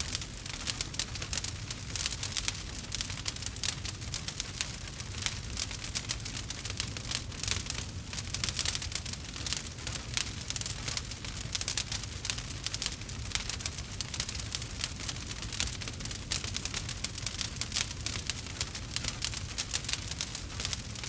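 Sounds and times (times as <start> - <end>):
campfire crackling and popping: 0.0 - 21.0.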